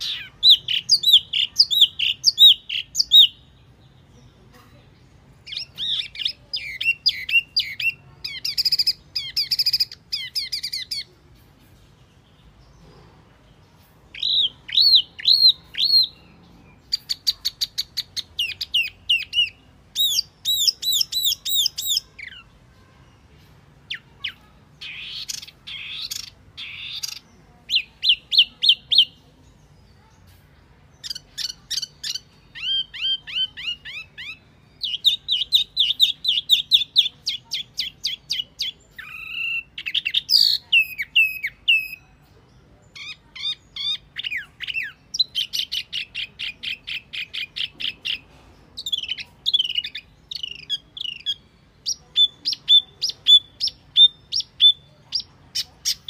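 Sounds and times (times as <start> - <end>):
bird whistling song: 0.0 - 3.5, 5.4 - 11.1, 14.1 - 16.2, 16.8 - 22.5, 31.0 - 42.1, 48.8 - 56.0.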